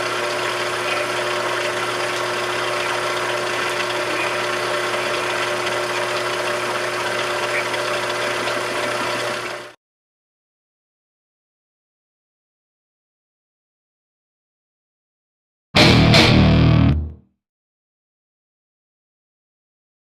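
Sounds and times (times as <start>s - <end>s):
machine tool humming: 0.0s - 9.6s.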